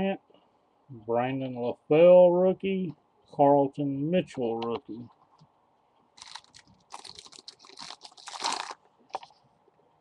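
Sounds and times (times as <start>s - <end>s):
card pack wrapper crinkling: 6.2s - 9.4s.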